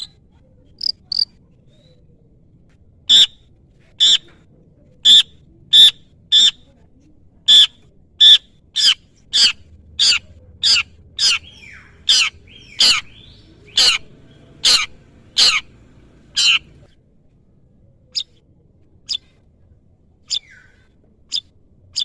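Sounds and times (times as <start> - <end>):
bird harsh scolding calls: 7.5 - 16.9.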